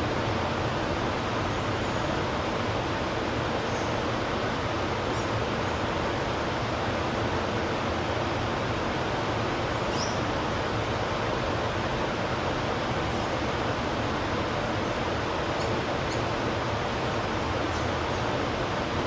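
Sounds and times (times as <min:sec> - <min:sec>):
rushing background noise: 0:00.0 - 0:19.0.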